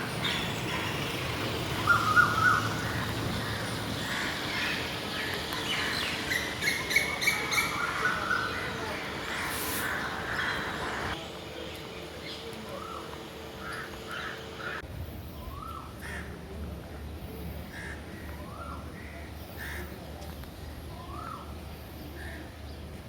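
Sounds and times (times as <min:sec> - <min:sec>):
birds calling: 0:00.0 - 0:14.8.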